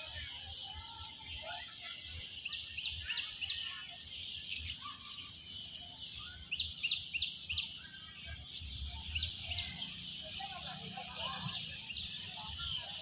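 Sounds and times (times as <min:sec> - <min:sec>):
birds chirping: 0:00.0 - 0:13.0
sharp bird chirps: 0:02.3 - 0:13.0.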